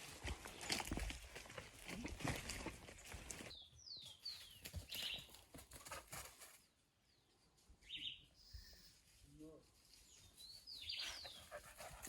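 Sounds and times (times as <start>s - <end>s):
horse hooves clopping: 0.0s - 3.5s
background noise: 0.0s - 12.0s
bird chirping: 10.0s - 11.9s.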